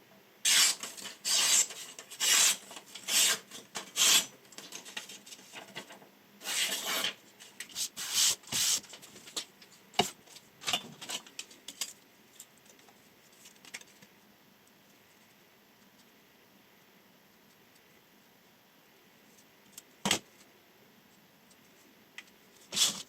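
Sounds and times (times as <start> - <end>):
knife blade rasping: 0.5 - 4.3.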